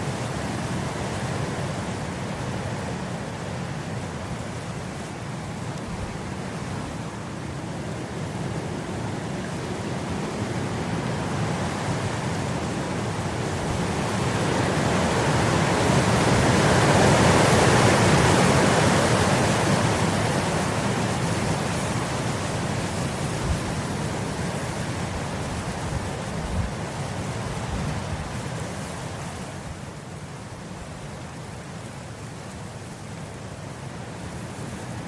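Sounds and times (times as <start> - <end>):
wind blowing across grass: 0.0 - 35.0.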